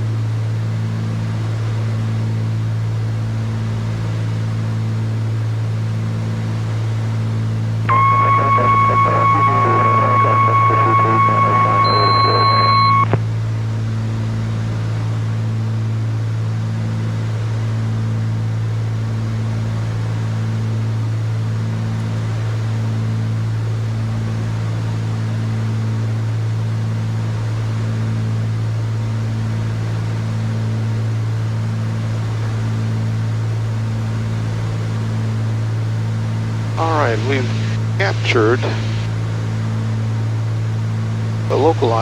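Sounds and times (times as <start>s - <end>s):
propeller plane engine drone: 0.0s - 42.0s
short electronic tone: 7.9s - 13.2s.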